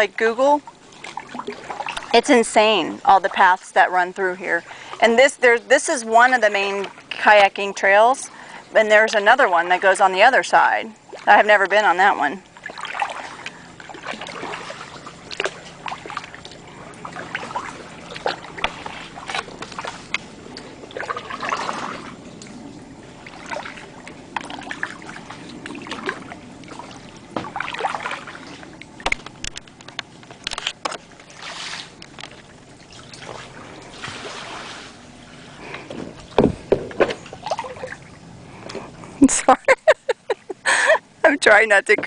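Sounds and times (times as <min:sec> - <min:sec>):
paddle strokes splashing: 0:00.0 - 0:41.0
sharp knocks: 0:36.4 - 0:37.2.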